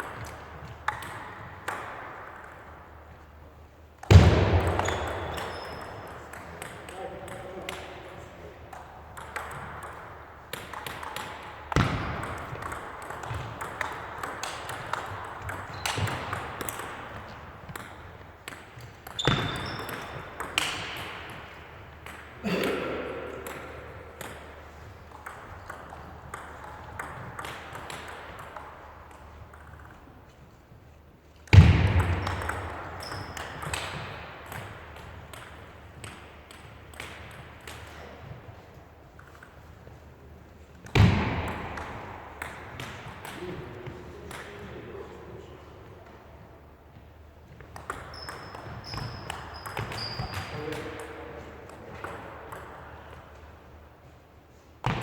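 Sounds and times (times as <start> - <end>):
ping pong ball clicking: 25.1 - 28.7.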